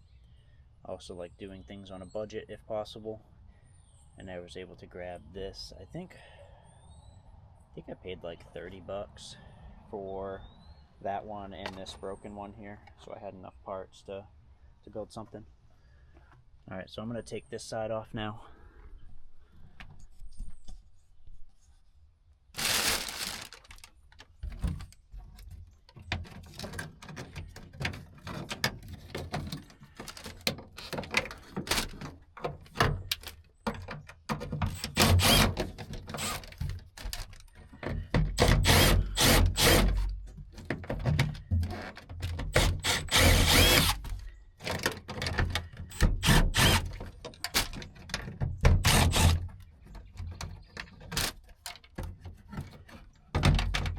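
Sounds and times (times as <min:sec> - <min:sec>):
tools and parts knocking and clicking: 0:24.5 - 0:43.0, 0:43.9 - 0:53.9.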